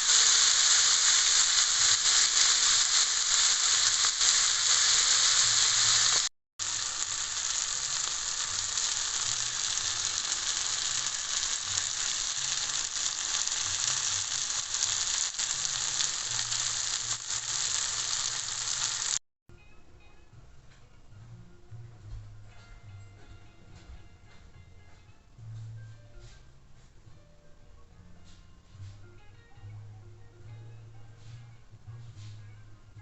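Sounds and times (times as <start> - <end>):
food sizzling in frying pan: 0.0 - 19.2.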